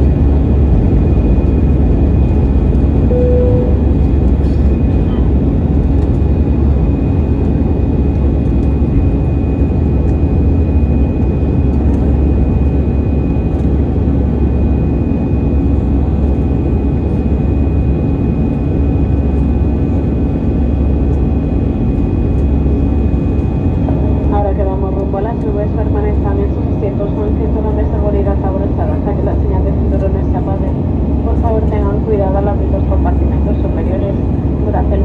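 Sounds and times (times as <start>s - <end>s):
jet engines and airflow rumble: 0.0s - 35.0s
faint high whine: 3.1s - 4.0s.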